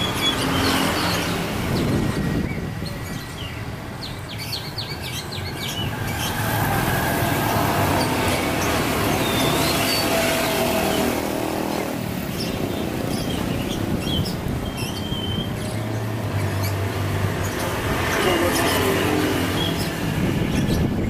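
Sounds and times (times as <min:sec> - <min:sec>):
bird chirps and whistles: 0:14.1 - 0:15.6.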